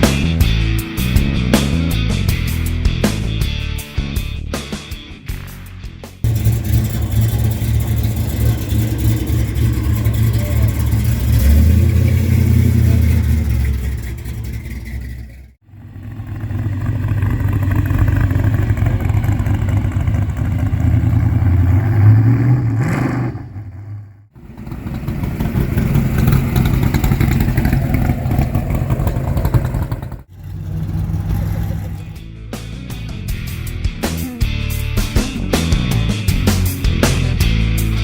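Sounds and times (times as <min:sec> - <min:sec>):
engine revving: 0:06.2 - 0:32.9
vehicle engines rumbling: 0:06.2 - 0:33.1.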